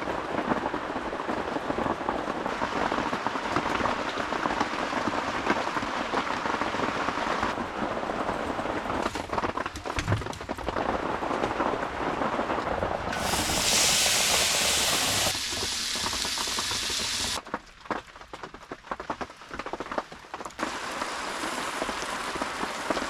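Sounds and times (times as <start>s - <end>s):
heavy rain on roof: 0.0s - 23.0s.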